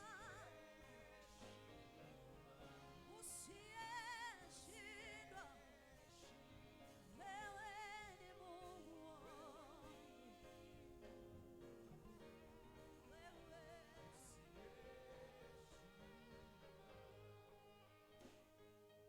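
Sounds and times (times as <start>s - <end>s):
gospel singing with vibrato: 0.0s - 18.5s.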